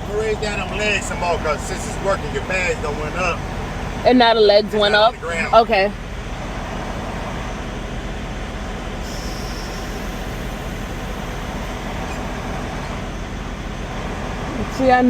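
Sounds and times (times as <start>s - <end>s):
diesel truck engine idling: 0.0s - 15.0s
air hiss: 9.0s - 13.3s.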